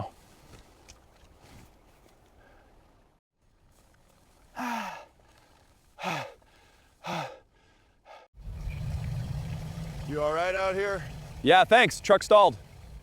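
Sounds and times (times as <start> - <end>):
man sighing or groaning: 4.6 - 5.1
vehicle engine running: 8.4 - 13.0.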